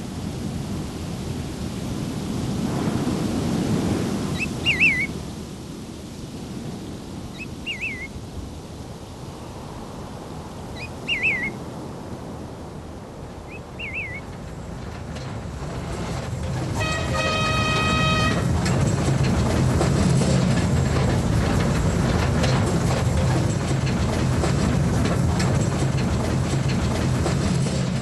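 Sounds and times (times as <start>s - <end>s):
bird warbling calls: 4.4s - 5.2s, 7.3s - 8.2s, 10.8s - 11.6s, 13.5s - 14.3s.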